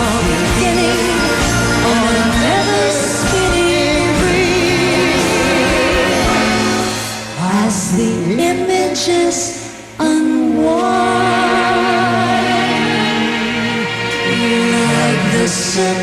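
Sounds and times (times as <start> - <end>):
instrumental accompaniment: 0.0 - 8.0
person singing with vibrato: 0.0 - 16.0.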